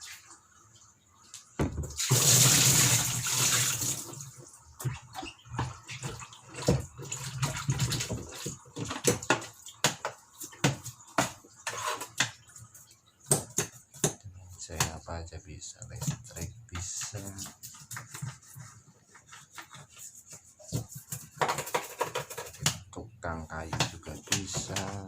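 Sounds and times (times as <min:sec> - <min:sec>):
water splashing: 0:01.4 - 0:18.8
parts knocking in water: 0:01.6 - 0:04.0, 0:04.8 - 0:12.5, 0:20.7 - 0:25.0.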